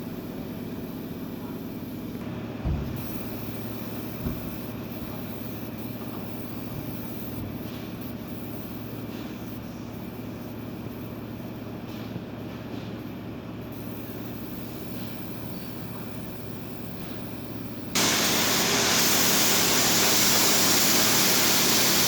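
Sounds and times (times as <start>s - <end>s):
industrial machinery drone: 18.0s - 22.0s.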